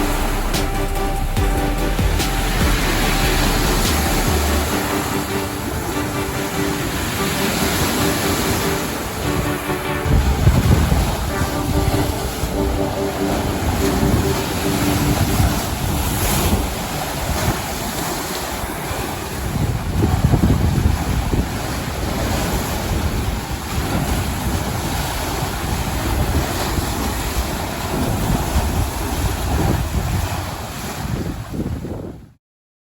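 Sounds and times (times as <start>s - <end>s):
sea waves breaking on shore: 0.0s - 32.1s
wind buffeting microphone: 10.0s - 32.4s.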